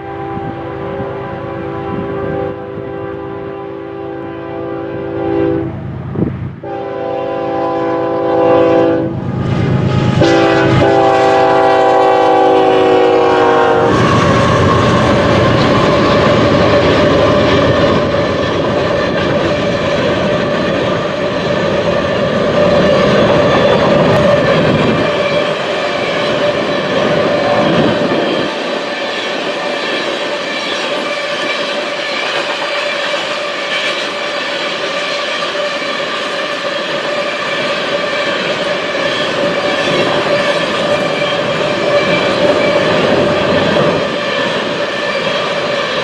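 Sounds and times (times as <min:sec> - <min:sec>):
locomotive air horn blasts: 0:00.0 - 0:05.8, 0:06.6 - 0:09.3, 0:10.1 - 0:14.7
train rolling past: 0:00.0 - 0:46.0.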